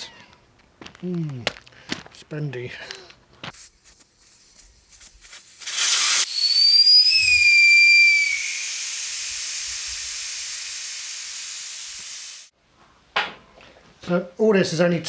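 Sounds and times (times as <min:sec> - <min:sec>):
air hissing: 0:03.6 - 0:12.5
air blast: 0:04.3 - 0:12.5
thin wavering whistle: 0:05.6 - 0:12.5.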